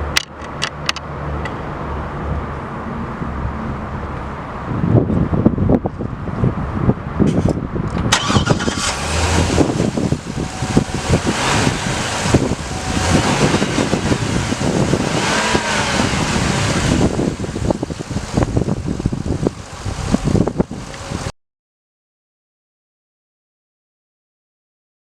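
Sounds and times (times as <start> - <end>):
car engine running: 8.2 - 21.3.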